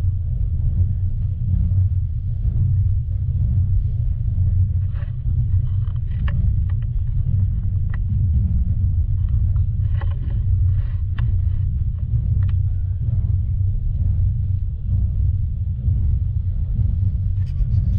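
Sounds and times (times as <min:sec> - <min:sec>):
passenger train rumbling: 0:00.0 - 0:17.9
light clicks and rattles: 0:04.4 - 0:15.1.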